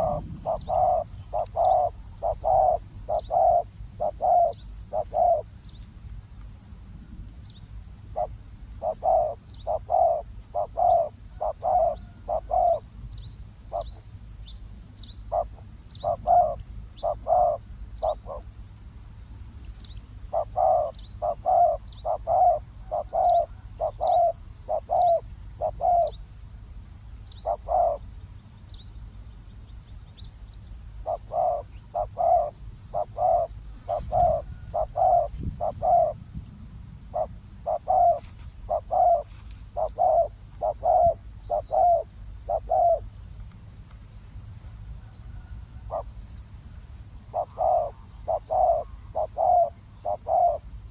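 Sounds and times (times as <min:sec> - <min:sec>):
doves cooing: 0:00.0 - 0:05.5, 0:08.1 - 0:12.9, 0:15.3 - 0:18.5, 0:20.3 - 0:26.2, 0:27.4 - 0:28.1, 0:31.0 - 0:36.2, 0:37.1 - 0:43.2, 0:44.9 - 0:46.3, 0:47.2 - 0:50.9.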